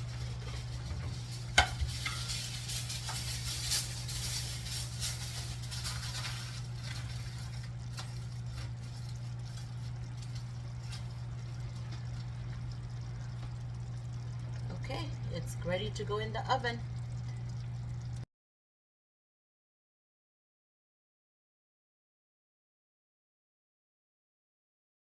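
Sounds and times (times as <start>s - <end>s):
aluminium foil crinkling: 0.0s - 13.0s
steady low hum: 0.0s - 18.2s.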